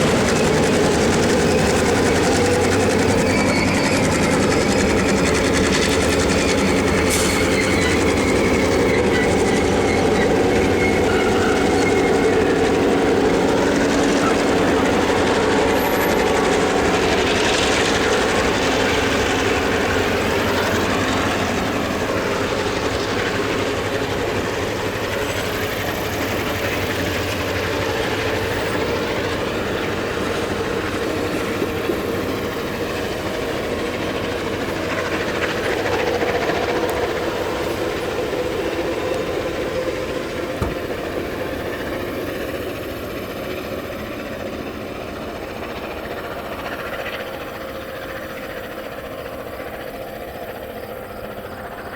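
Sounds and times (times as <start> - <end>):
train rolling past: 0.0 - 51.9.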